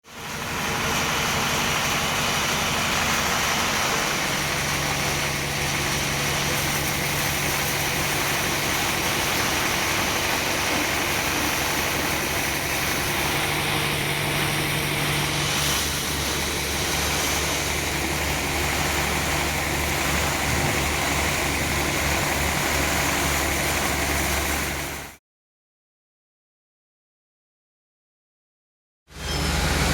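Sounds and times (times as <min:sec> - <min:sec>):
engine low drone: 0:00.1 - 0:25.2, 0:29.1 - 0:29.9
sawmill machinery running: 0:00.1 - 0:25.2, 0:29.1 - 0:29.9.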